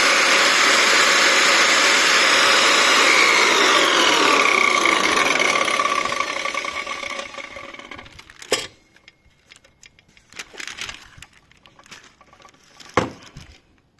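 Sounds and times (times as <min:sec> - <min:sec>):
power tool motor winding down: 0:00.0 - 0:08.4
light clicks and handling noises: 0:08.4 - 0:13.9.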